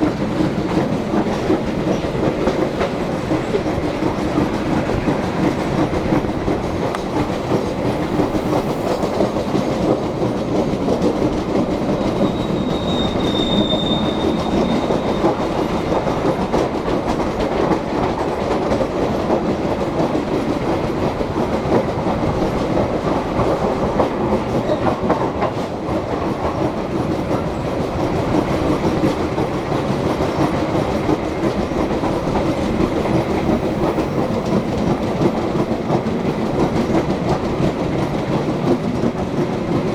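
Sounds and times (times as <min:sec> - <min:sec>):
train wheels clacking on rails: 0:00.0 - 0:39.9
high-pitched wheel squeal: 0:12.0 - 0:15.5.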